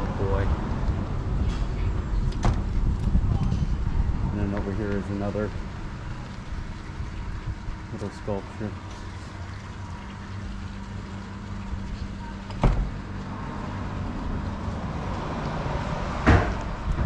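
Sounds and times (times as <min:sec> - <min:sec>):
car passing: 0:09.4 - 0:17.0
sharp knocks: 0:16.2 - 0:17.0.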